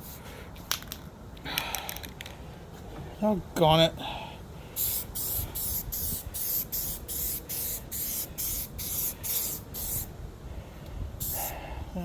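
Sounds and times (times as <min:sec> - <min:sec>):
spray can hissing bursts: 0:04.8 - 0:10.1.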